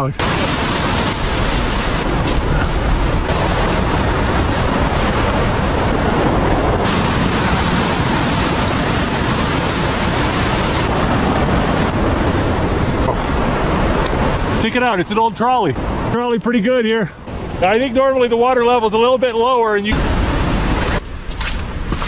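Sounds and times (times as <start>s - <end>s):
fast-flowing river rushing: 0.2s - 15.1s.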